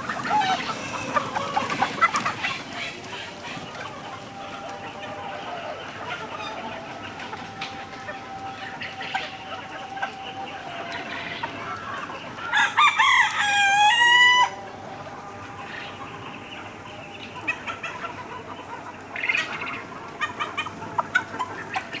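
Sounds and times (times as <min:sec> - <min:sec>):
chickens clucking: 0:00.0 - 0:22.0
rooster crowing: 0:12.5 - 0:14.6.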